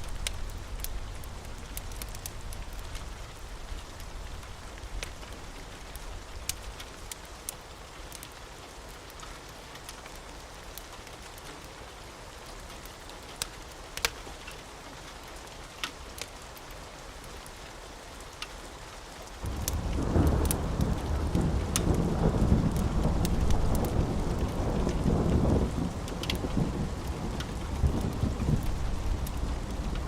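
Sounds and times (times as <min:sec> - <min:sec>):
rain hissing: 0:00.0 - 0:07.8, 0:19.3 - 0:30.0
sharp ticks and pops: 0:00.1 - 0:03.1, 0:13.4 - 0:14.2, 0:19.4 - 0:22.0, 0:22.6 - 0:25.5, 0:26.1 - 0:26.6
thunder rumbling: 0:19.4 - 0:30.0.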